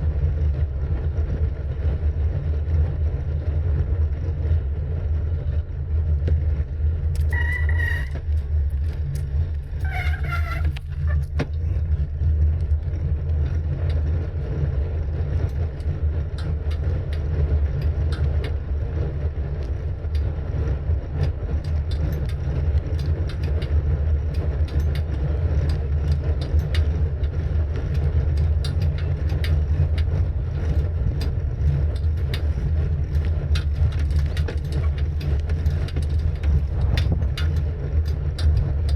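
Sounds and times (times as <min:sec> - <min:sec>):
bicycle ticking and rattling: 0:00.0 - 0:38.9
wind buffeting microphone: 0:00.0 - 0:38.9
short squeaky tones: 0:07.2 - 0:08.3, 0:09.8 - 0:11.3.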